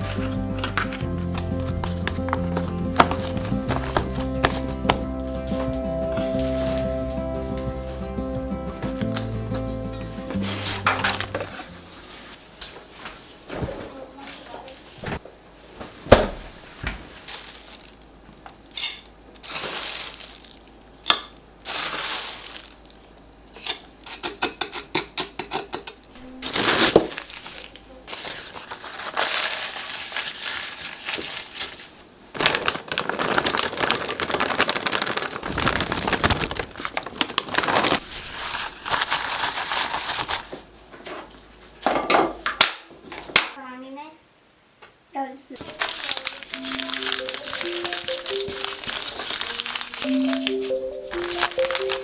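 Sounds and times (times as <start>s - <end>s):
plastic crinkling: 0.0s - 7.6s, 10.3s - 12.6s, 16.5s - 18.7s, 19.4s - 23.3s, 26.3s - 40.7s, 45.6s - 52.0s.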